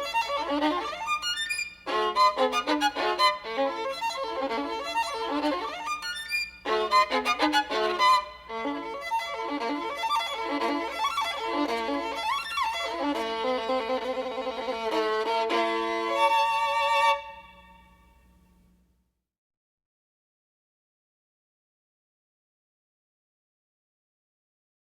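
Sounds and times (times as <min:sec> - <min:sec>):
solo violin music: 0:00.0 - 0:18.0.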